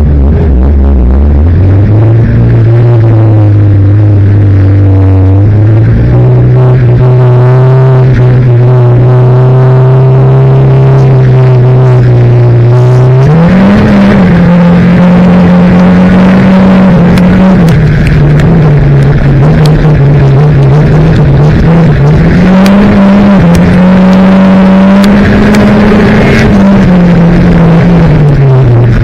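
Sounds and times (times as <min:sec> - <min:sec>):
race car engine revving: 0:00.0 - 0:29.0.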